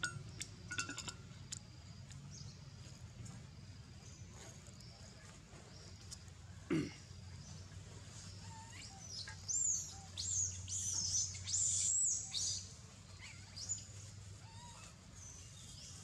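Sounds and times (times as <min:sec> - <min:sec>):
bird chirping: 0:08.2 - 0:16.0.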